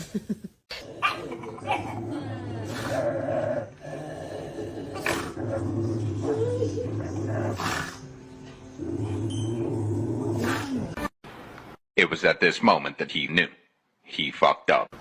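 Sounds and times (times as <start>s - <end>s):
dog growling: 0.7s - 11.0s.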